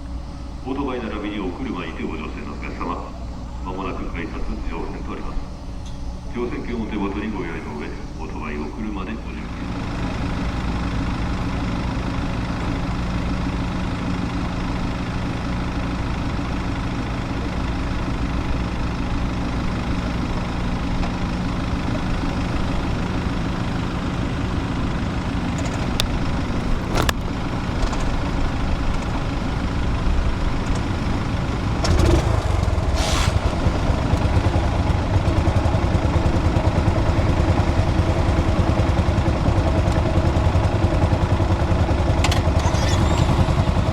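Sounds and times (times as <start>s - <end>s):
deep loud engine: 0.0s - 43.9s
engines running: 0.0s - 43.9s.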